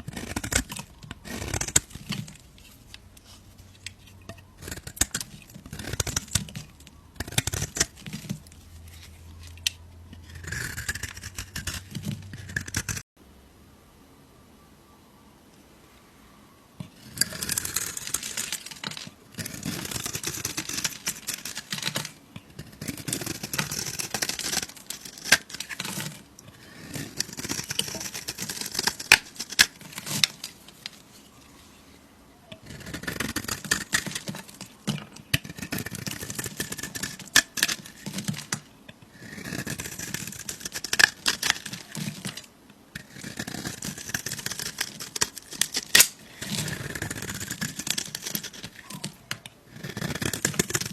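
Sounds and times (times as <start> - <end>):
knife cutting through soap: 43.0 - 50.9.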